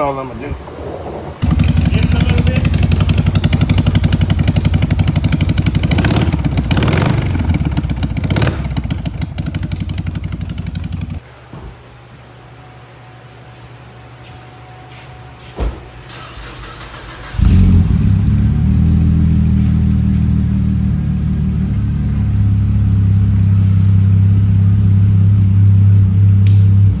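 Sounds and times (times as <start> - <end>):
car engine idling deeply: 0.0 - 11.2, 17.2 - 27.0.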